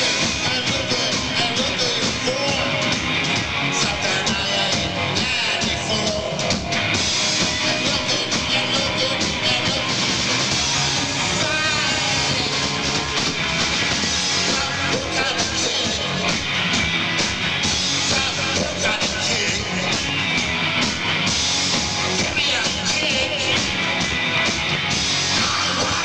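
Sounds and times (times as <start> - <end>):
bass guitar: 0.0 - 26.0
drums: 0.0 - 26.0
electric guitars: 0.0 - 26.0.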